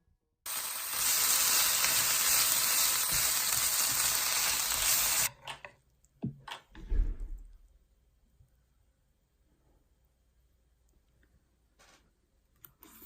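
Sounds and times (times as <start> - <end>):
food sizzling in a frying pan: 0.5 - 5.3.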